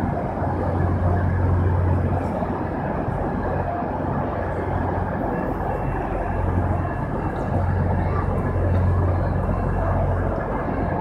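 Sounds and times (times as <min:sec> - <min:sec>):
standing train drone and rumble: 0:00.0 - 0:11.0.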